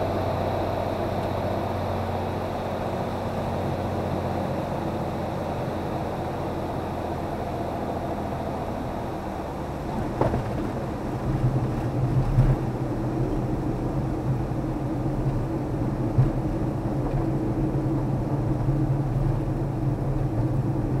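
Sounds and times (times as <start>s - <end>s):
aircraft engine droning: 0.0s - 21.0s
runway rolling rumble with bumps: 9.5s - 21.0s.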